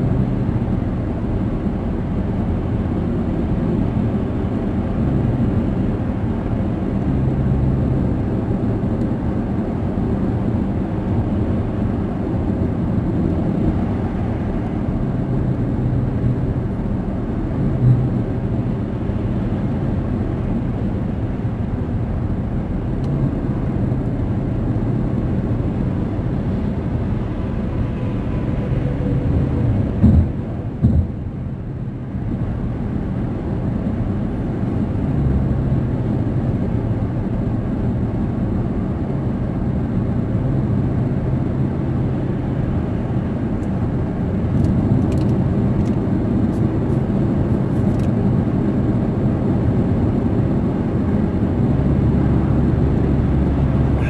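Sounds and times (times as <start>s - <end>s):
car cabin road rumble: 0.0s - 54.0s
car bump: 30.0s - 31.3s.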